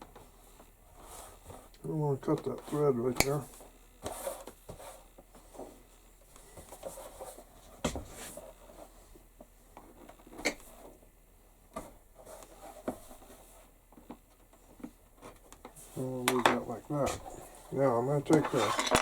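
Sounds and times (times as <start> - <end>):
soft rubbing of leather: 2.5 - 11.1.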